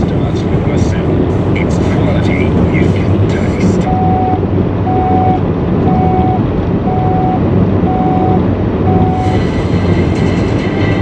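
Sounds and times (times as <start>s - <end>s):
car road and engine rumble: 0.0s - 11.0s
news theme music: 0.0s - 11.0s
radio time signal beeps: 3.8s - 9.4s.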